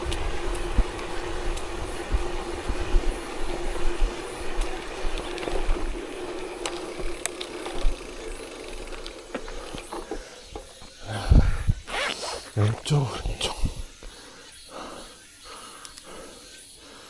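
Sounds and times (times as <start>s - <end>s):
steady hum: 0.0s - 7.2s
bike rattling: 0.0s - 11.1s
tyres crunching over gravel: 0.0s - 11.1s.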